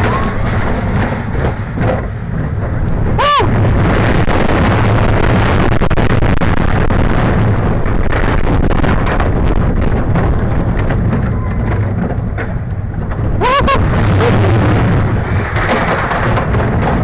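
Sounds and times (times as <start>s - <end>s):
roller coaster rumble and rattle: 0.0s - 17.0s
wind buffeting microphone: 0.0s - 17.0s.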